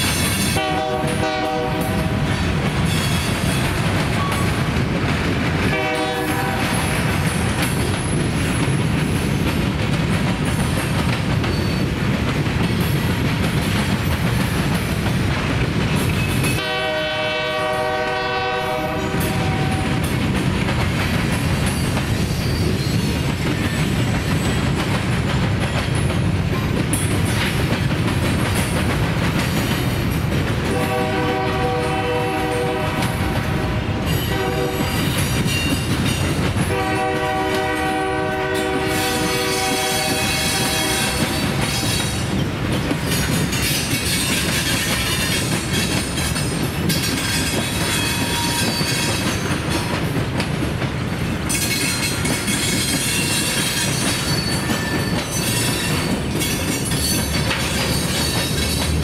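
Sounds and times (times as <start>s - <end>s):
locomotive horn blasts: 0.5s - 2.3s, 5.7s - 6.8s, 16.6s - 20.0s, 30.7s - 34.9s, 36.7s - 41.4s
freight cars rumbling and clattering: 1.8s - 16.6s, 19.1s - 36.8s, 40.5s - 59.0s.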